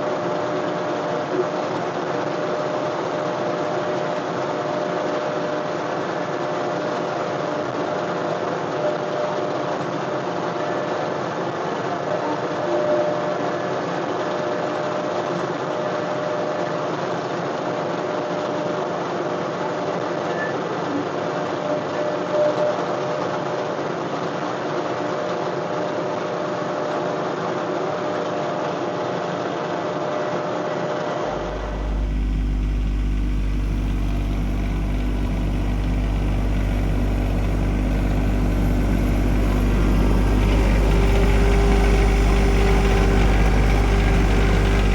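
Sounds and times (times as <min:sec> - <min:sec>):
tractor diesel engine running: 0:31.3 - 0:44.9.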